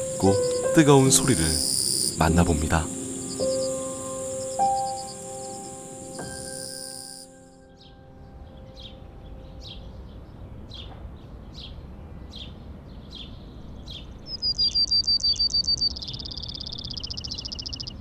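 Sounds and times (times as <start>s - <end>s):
rapid bird trill: 0.0s - 7.2s, 14.0s - 18.0s
buzzy bird trill: 0.0s - 7.3s, 14.0s - 18.0s
songbird chirping: 0.0s - 18.0s.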